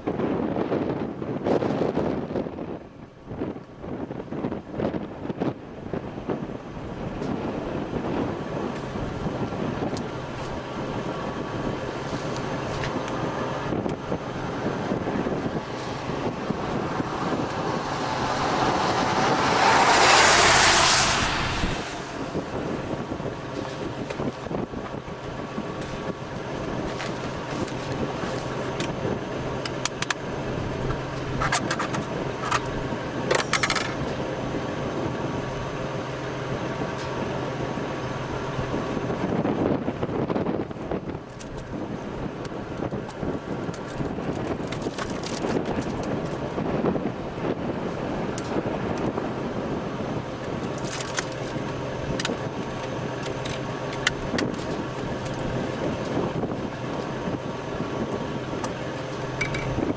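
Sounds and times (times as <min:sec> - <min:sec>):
vehicle road noise: 0:00.0 - 0:59.9
vehicle passing close by: 0:14.1 - 0:25.6.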